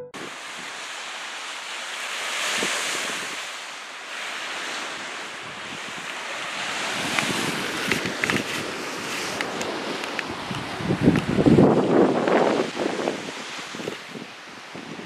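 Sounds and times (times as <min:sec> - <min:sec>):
waves washing onto sandy beach: 0:00.2 - 0:15.0
wind on microphone: 0:05.4 - 0:15.0.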